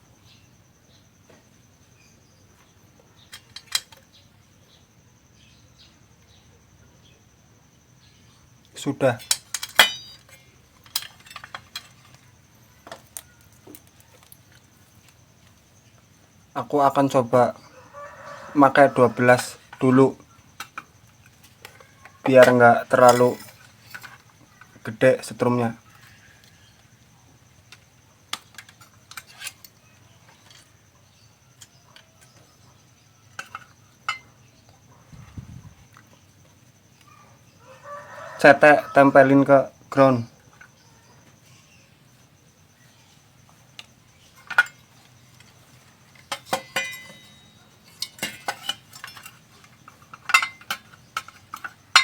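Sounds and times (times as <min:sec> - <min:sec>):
small objects clicking and tapping: 0:03.2 - 0:04.2, 0:09.2 - 0:16.0, 0:19.4 - 0:24.9, 0:25.8 - 0:35.0, 0:43.4 - 0:52.0
metallic tool clicks and clinks: 0:03.3 - 0:04.1, 0:09.2 - 0:12.2, 0:21.6 - 0:24.7, 0:46.2 - 0:52.0.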